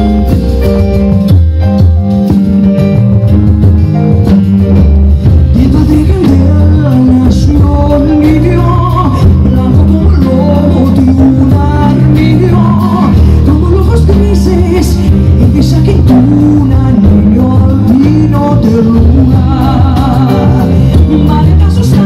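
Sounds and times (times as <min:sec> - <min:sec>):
instrumental backing chords: 0:00.0 - 0:22.0
woman singing a ballad: 0:05.6 - 0:22.0.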